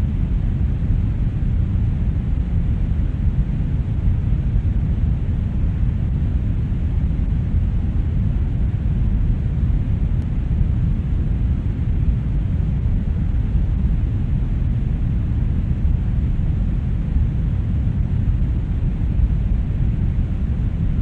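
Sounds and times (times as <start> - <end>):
brown noise: 0.0 - 21.0.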